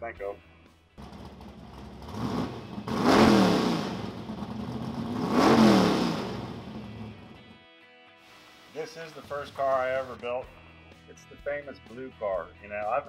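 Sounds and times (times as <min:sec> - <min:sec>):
car engine revving: 0:01.0 - 0:07.5.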